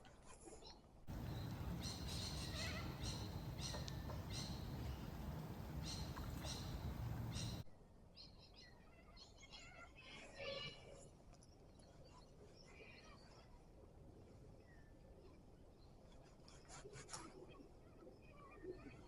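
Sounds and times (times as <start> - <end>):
birds chirping: 1.1 - 7.6
steady low rumble: 1.1 - 7.6.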